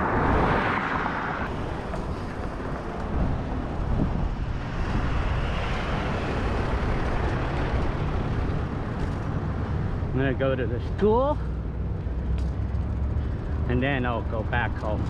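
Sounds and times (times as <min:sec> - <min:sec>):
rushing air: 0:00.0 - 0:10.2
road and traffic rumble: 0:00.0 - 0:15.0.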